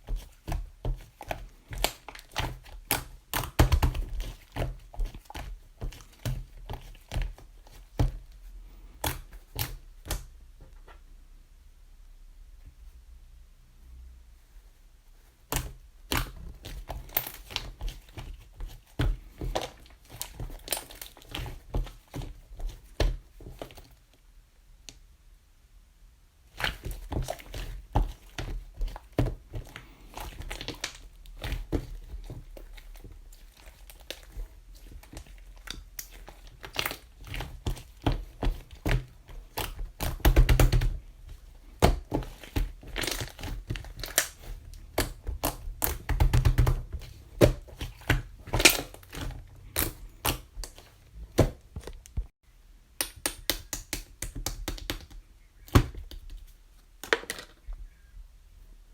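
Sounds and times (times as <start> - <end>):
crinkling and rustling: 0.0 - 11.1, 14.4 - 25.0, 26.5 - 52.4
hands tapping and knocking: 41.7 - 52.3.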